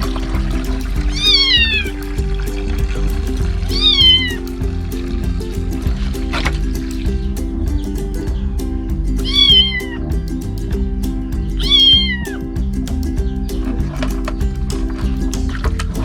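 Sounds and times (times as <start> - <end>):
background music: 0.0 - 16.0
kitten meowing: 1.1 - 1.9, 3.8 - 4.4, 9.2 - 10.0, 11.6 - 12.3.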